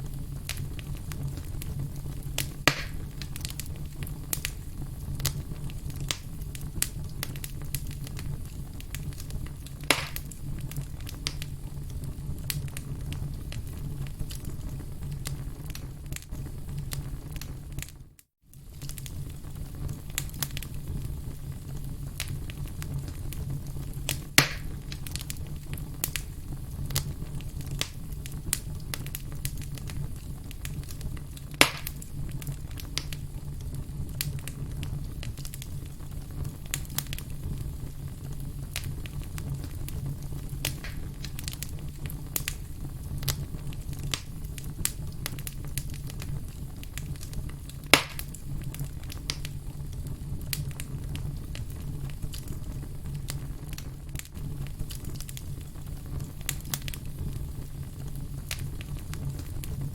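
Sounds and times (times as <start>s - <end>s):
loud fire pops: 0.0s - 18.0s, 18.6s - 59.9s
campfire crackling: 0.0s - 59.9s.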